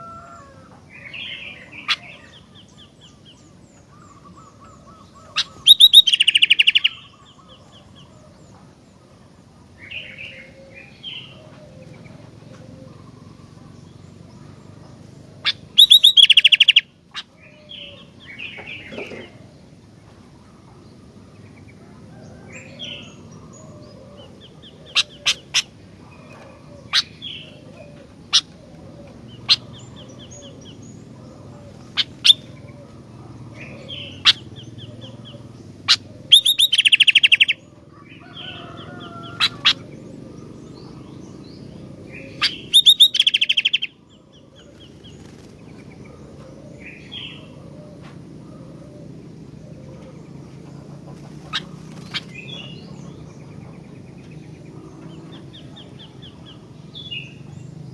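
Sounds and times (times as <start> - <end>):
bird rapid chattering: 0.9 - 8.1, 9.6 - 21.8, 22.4 - 37.6, 38.2 - 47.8, 48.6 - 57.9
bird singing sharp notes: 4.0 - 8.0, 15.4 - 16.9, 31.9 - 37.6, 40.4 - 44.0.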